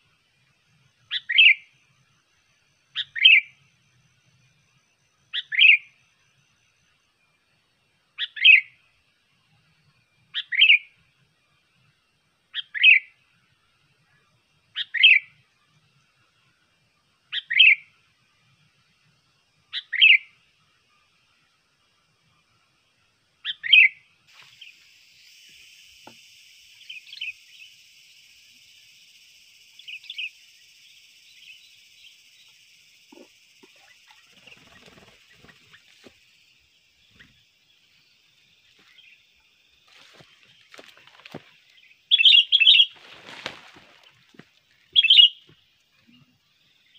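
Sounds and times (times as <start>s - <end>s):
steady high hiss: 17.8s - 46.9s
faint bird calls: 23.4s - 46.9s.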